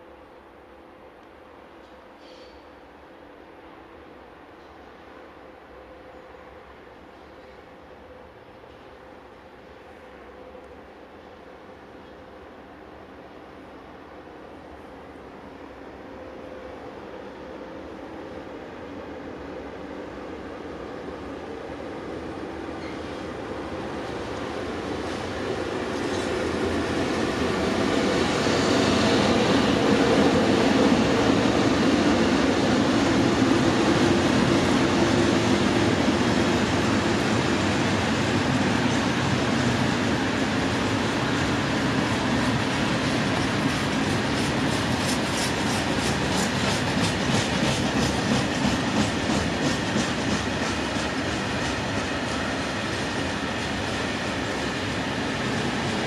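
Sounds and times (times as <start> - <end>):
freight train passing: 0.0 - 56.0.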